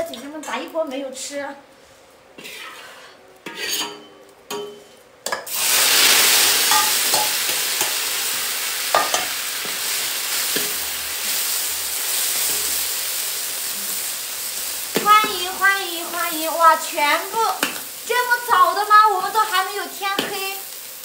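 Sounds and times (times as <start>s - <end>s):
food sizzling in hot oil: 5.4s - 21.0s.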